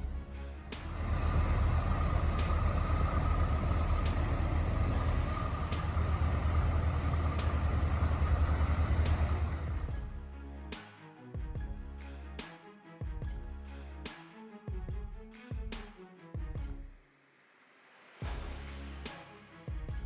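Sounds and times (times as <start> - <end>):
diesel truck engine rumbling: 0.8 - 9.9
faint whine: 0.9 - 9.9.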